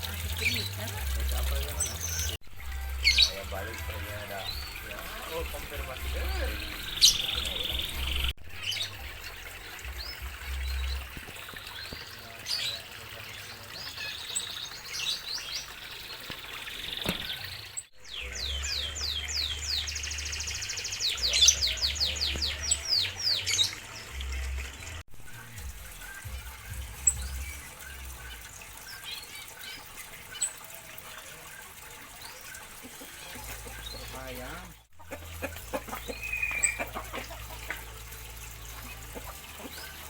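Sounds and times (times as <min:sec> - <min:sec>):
finches chirping and calling: 0:01.4 - 0:24.5, 0:35.2 - 0:37.7.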